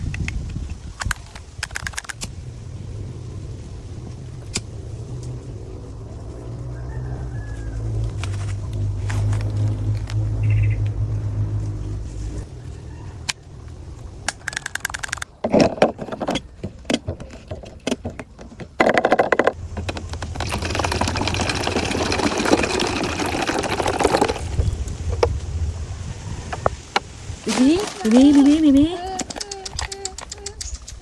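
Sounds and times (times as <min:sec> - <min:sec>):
handling clicks and knocks: 0:14.2 - 0:20.8, 0:27.8 - 0:31.0
water running: 0:20.0 - 0:24.6.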